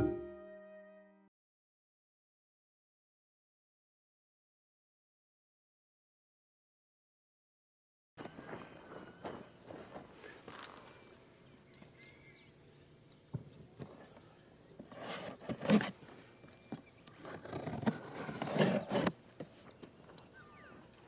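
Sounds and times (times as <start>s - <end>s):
rustling and scraping: 8.2s - 11.0s, 14.8s - 21.0s
faint bird chirps: 8.8s - 14.8s, 19.7s - 21.0s.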